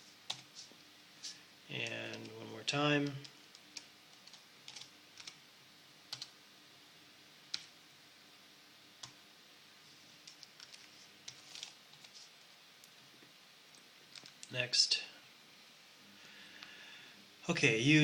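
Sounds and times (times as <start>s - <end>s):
computer keyboard keystrokes: 3.8s - 5.4s, 6.1s - 6.3s.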